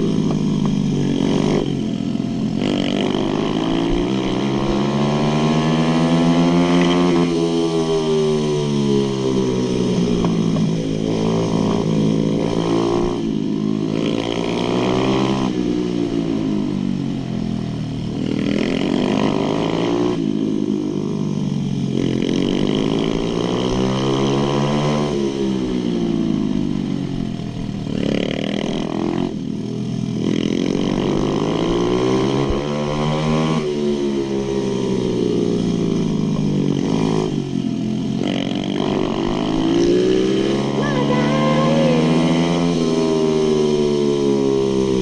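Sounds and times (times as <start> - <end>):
pit bike engine revving: 0.0 - 17.2, 17.9 - 45.0.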